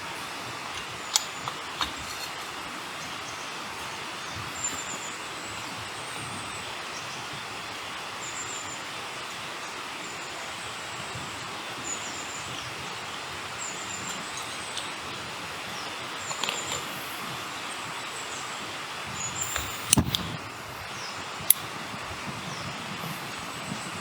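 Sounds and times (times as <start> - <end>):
forest ambience hiss: 0.0 - 24.0
light clicks: 19.4 - 20.4.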